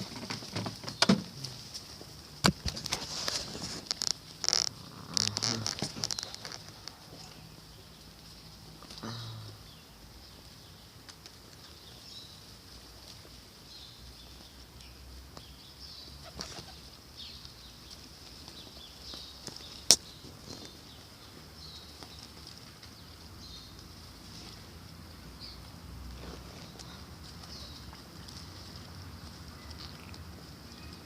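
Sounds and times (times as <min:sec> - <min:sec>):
small birds chirping: 0:00.0 - 0:31.0
wing flutters: 0:16.2 - 0:16.9.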